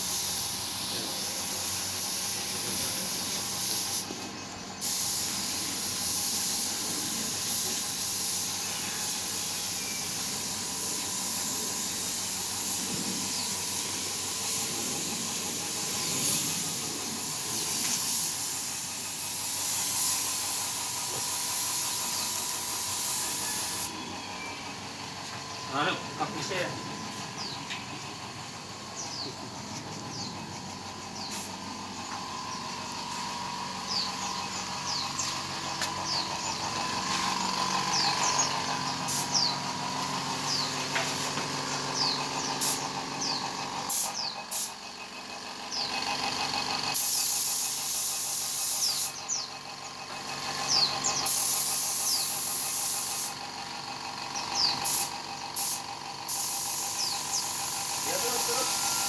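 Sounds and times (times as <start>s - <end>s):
spray gun hissing: 0.0s - 23.9s, 29.6s - 44.9s, 46.8s - 49.4s, 50.4s - 53.5s, 54.7s - 59.0s
steady machine hum: 0.0s - 47.1s.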